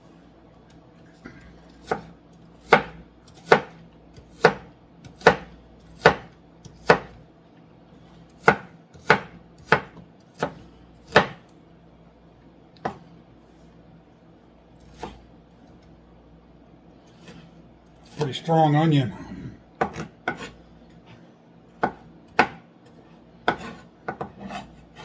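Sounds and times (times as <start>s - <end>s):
knife chopping onion on board: 1.7s - 7.2s, 8.4s - 11.5s, 12.8s - 13.0s, 14.8s - 15.2s, 19.8s - 20.6s, 21.8s - 22.7s, 23.4s - 25.0s.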